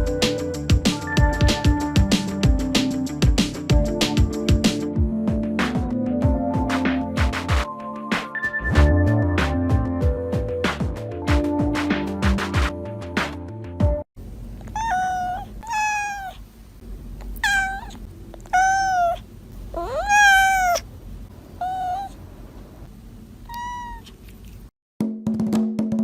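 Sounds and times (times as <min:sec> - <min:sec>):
cat meowing: 0:14.7 - 0:16.4, 0:17.3 - 0:20.9, 0:21.6 - 0:22.2, 0:23.4 - 0:24.3.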